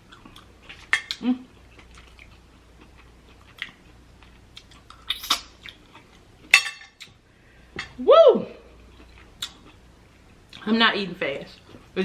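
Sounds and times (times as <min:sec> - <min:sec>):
close chewing and mouth sounds: 0:00.0 - 0:06.4, 0:08.8 - 0:10.7.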